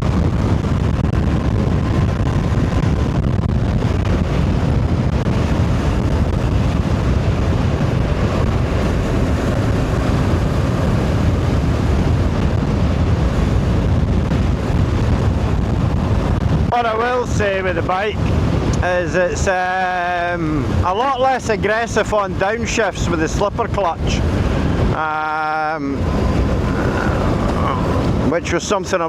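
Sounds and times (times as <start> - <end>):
wind buffeting microphone: 0.0 - 29.0
motorcycle engine running: 1.2 - 16.6, 26.0 - 28.3.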